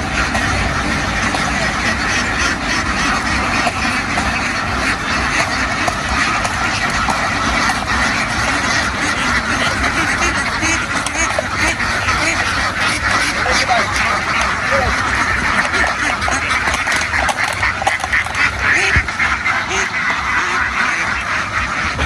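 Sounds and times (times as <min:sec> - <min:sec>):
ducks quacking: 0:00.0 - 0:22.0.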